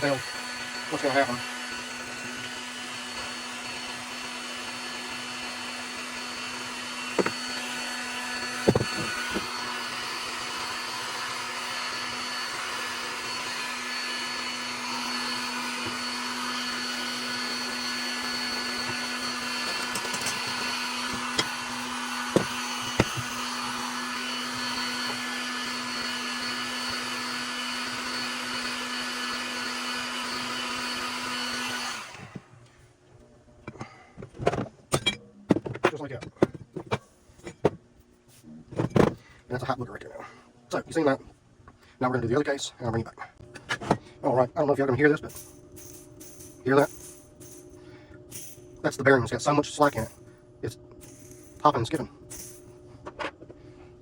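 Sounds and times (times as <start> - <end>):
heat gun blowing: 0.0 - 32.5.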